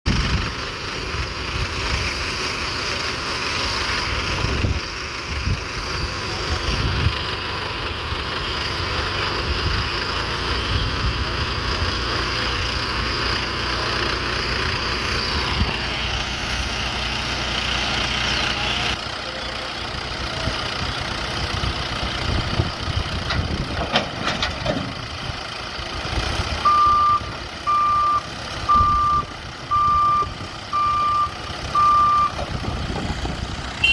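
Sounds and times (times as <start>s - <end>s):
backhoe diesel engine running: 0.1s - 33.9s
reversing alarm beeping: 26.6s - 32.4s.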